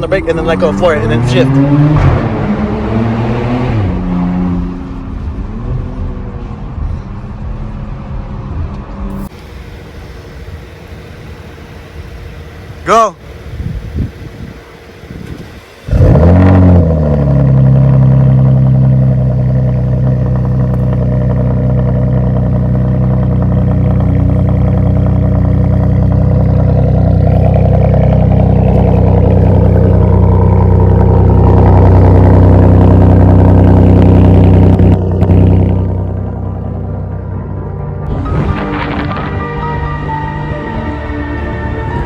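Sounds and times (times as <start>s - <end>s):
loud car engine revving: 0.0s - 6.2s, 15.1s - 42.0s.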